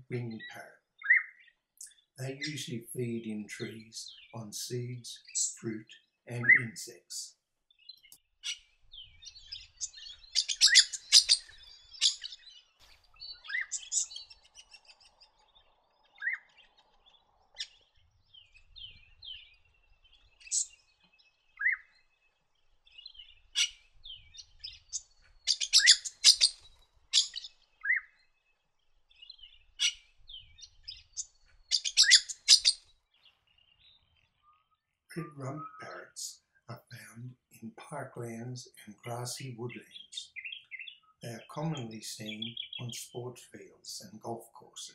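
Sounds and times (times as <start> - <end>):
parrot calling: 9.6 - 12.4, 25.5 - 26.6, 27.2 - 28.0, 31.7 - 32.8.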